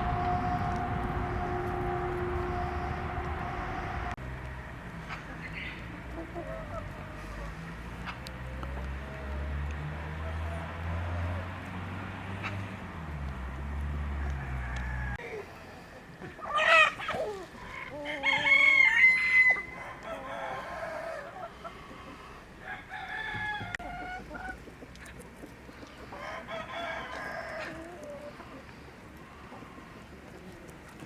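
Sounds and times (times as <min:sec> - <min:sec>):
rooster crowing: 0:00.0 - 0:04.2, 0:14.1 - 0:15.2, 0:17.7 - 0:21.4, 0:22.6 - 0:24.2, 0:26.1 - 0:28.0
chickens clucking: 0:04.9 - 0:11.8, 0:14.2 - 0:31.0.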